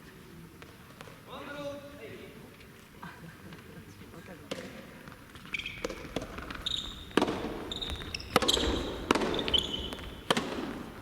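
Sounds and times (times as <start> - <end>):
ball striking and bouncing: 4.5 - 11.0
shoes squeaking on court floor: 4.5 - 11.0.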